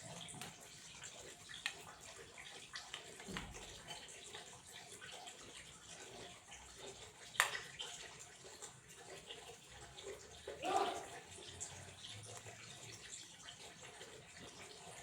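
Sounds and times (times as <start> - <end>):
tap water splashing into tub: 0.0 - 5.5, 6.9 - 15.0.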